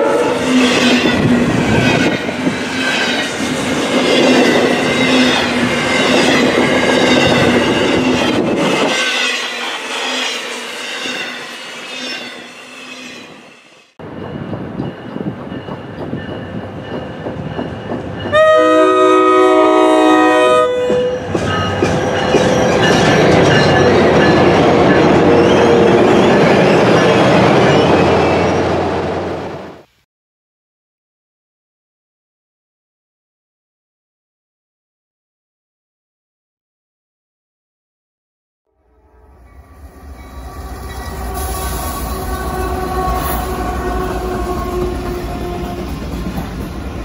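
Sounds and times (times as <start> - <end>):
locomotive air horn blast: 0.0 - 0.8, 18.3 - 21.3, 40.4 - 46.0
freight train rolling past: 0.0 - 29.9, 38.9 - 47.0
train wheels squealing: 0.3 - 18.4, 20.8 - 28.8, 39.3 - 47.0.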